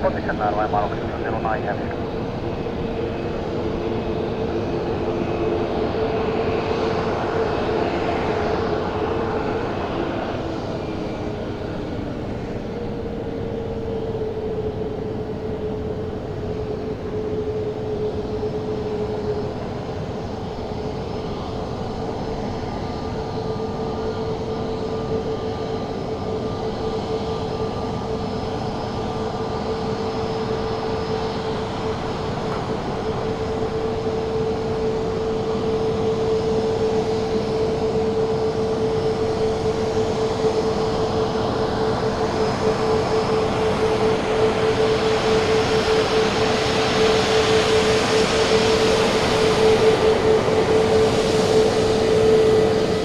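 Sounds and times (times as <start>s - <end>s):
jet engines whining: 0.0s - 11.3s, 23.4s - 53.0s.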